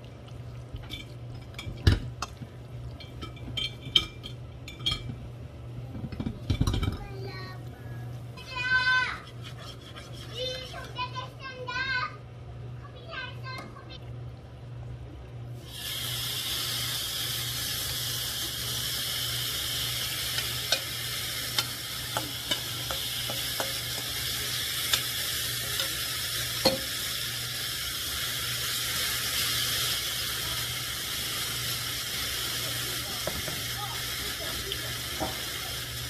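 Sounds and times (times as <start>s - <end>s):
chicken sizzling in a wok: 15.6s - 36.0s.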